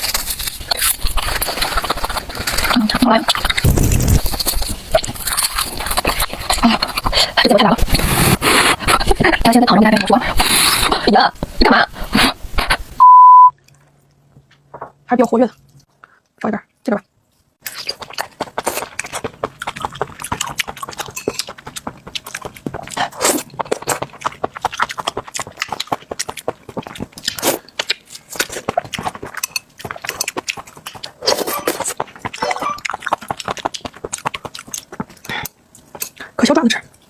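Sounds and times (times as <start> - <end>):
bites and slurps: 0.0 - 11.2, 17.6 - 37.0
wet chewing and mouth smacking: 17.6 - 37.0.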